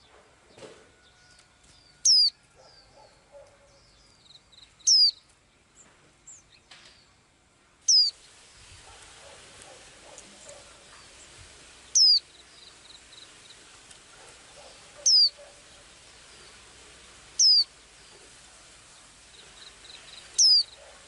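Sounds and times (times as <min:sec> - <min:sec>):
soft bird chirps: 0:00.0 - 0:07.2, 0:07.9 - 0:21.0
songbird whistled notes: 0:01.9 - 0:02.9, 0:04.8 - 0:05.2, 0:07.9 - 0:08.2, 0:11.9 - 0:13.3, 0:15.0 - 0:15.4, 0:17.4 - 0:17.7, 0:20.0 - 0:20.8.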